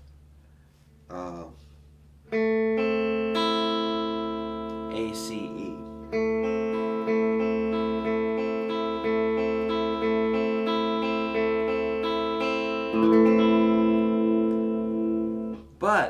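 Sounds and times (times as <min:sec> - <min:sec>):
guitar chord: 0:02.3 - 0:15.8
acoustic guitar picking arpeggio: 0:02.4 - 0:15.6.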